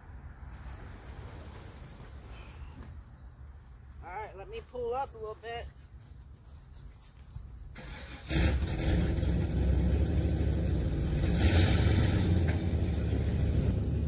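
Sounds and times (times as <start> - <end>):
pickup truck engine accelerating: 7.8 - 14.0.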